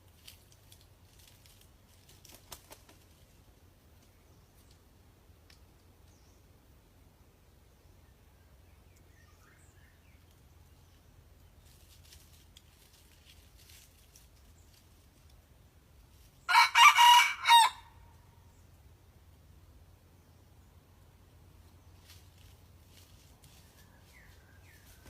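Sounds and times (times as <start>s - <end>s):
rooster crowing: 16.5s - 18.0s.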